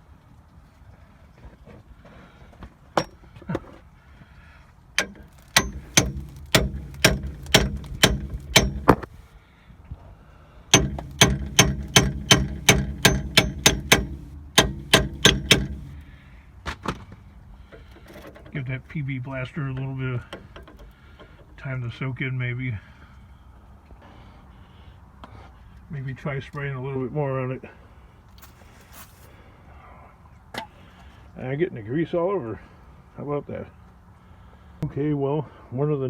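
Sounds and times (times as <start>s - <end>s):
hammer striking metal: 3.0s - 3.2s, 5.0s - 9.1s, 10.7s - 16.0s.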